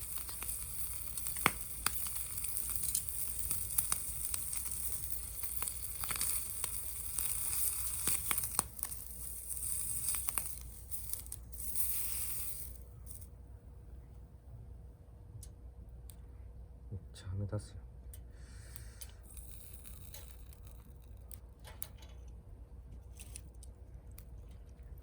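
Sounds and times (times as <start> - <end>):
food sizzling in a pan: 0.0 - 13.2, 19.3 - 20.7
fire crackling and popping: 0.0 - 13.4, 18.6 - 22.2, 23.0 - 25.0.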